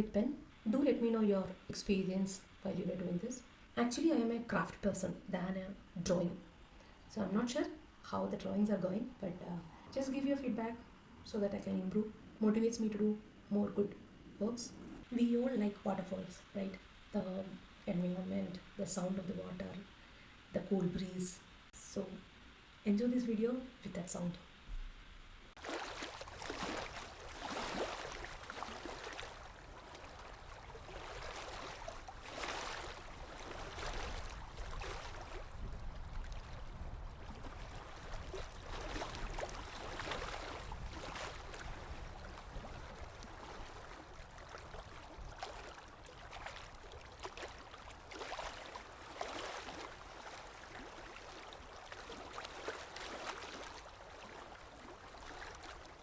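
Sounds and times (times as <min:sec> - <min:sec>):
stream water splashing and gurgling: 0:25.5 - 0:56.0.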